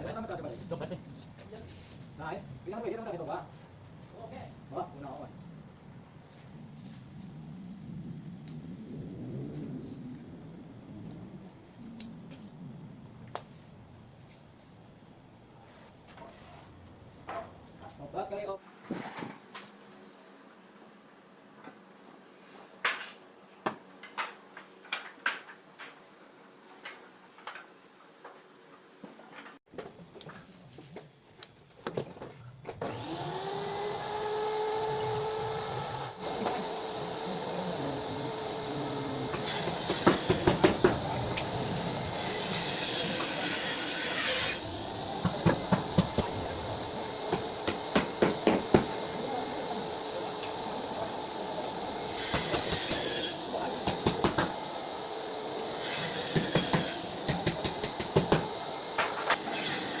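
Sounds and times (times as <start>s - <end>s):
small motor running steadily: 32.8s - 59.4s.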